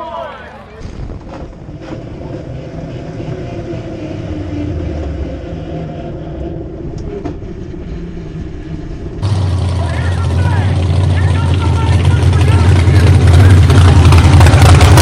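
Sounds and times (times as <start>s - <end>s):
truck engine idling: 6.3s - 15.0s.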